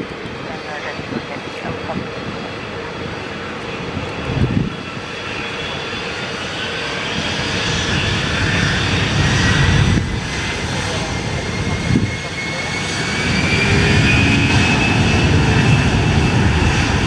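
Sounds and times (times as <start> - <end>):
jet engines roaring: 0.0 - 17.0
rising whine: 7.4 - 17.0.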